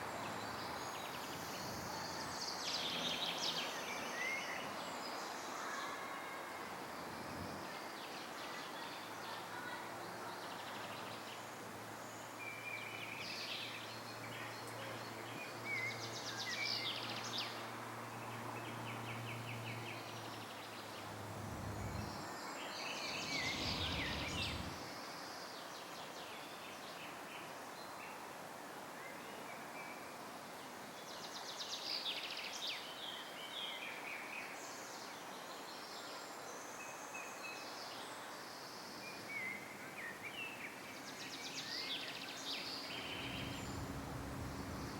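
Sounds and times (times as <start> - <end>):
steady background hiss: 0.0 - 44.9
songbirds chirping and trilling: 12.2 - 24.9, 38.6 - 44.9
brief low rumble: 21.1 - 22.2, 23.0 - 24.8, 42.9 - 44.9
low hum: 21.1 - 22.2, 23.1 - 24.8, 42.9 - 44.9.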